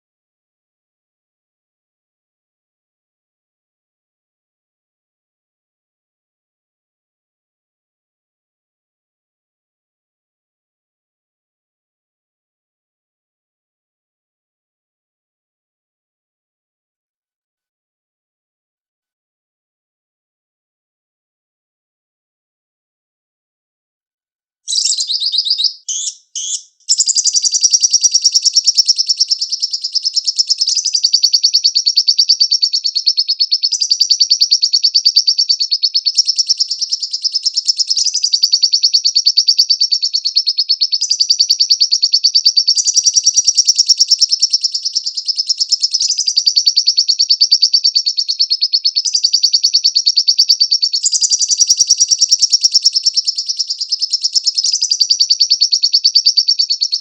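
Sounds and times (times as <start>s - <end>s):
lovebird calls and chattering trill: 24.7s - 57.0s.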